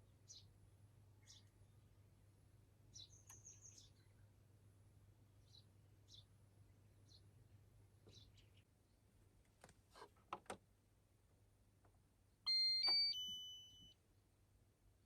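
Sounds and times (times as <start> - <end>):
three-note electronic chime: 12.5 - 13.9.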